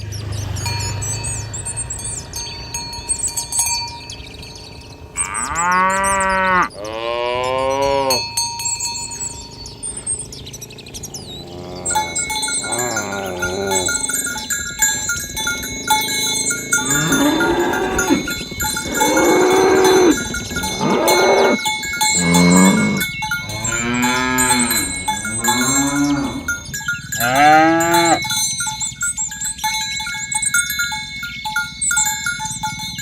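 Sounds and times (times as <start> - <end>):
small bells clinking: 0.0 - 33.0
cattle mooing: 5.1 - 8.3, 9.3 - 28.3.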